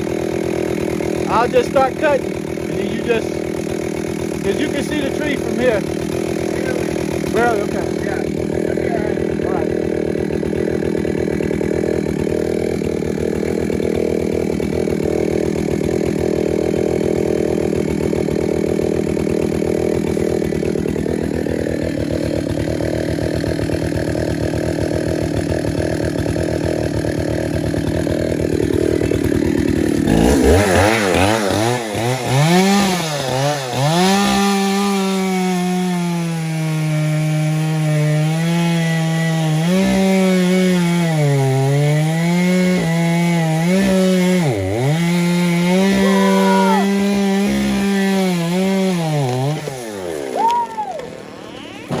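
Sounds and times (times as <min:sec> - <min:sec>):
engine droning: 0:00.0 - 0:24.2, 0:44.3 - 0:52.0
chainsaw revving under load: 0:00.0 - 0:52.0.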